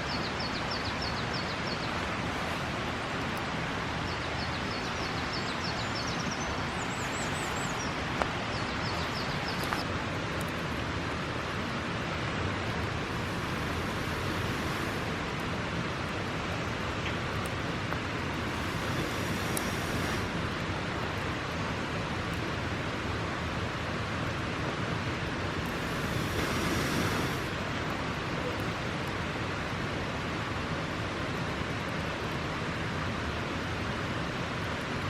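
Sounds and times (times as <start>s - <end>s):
outdoor rushing noise: 25.5s - 28.3s.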